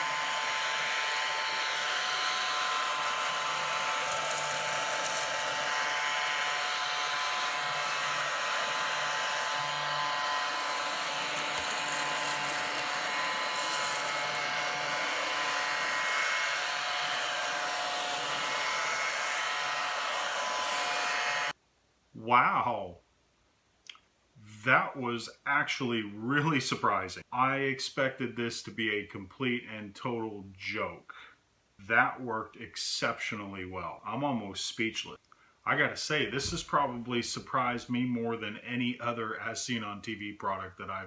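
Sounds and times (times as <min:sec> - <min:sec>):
mini vacuum motor whining: 0:00.0 - 0:21.6.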